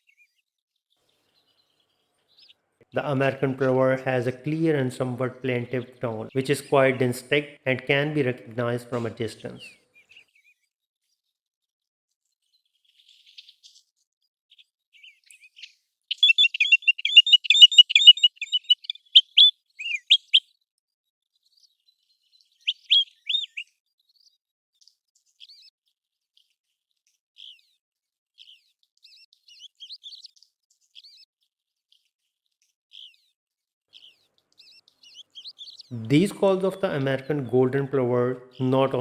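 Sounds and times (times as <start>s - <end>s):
plover whistled calls: 16.1s - 20.4s, 22.7s - 23.6s
slurred bird notes: 16.1s - 20.4s, 22.7s - 23.6s, 35.8s - 39.0s.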